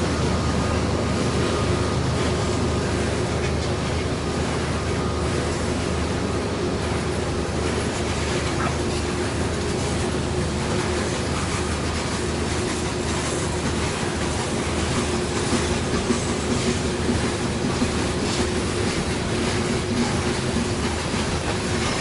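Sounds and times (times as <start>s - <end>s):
train rumble and hum: 0.0s - 22.0s
wheels clicking over rail joints: 6.8s - 22.0s.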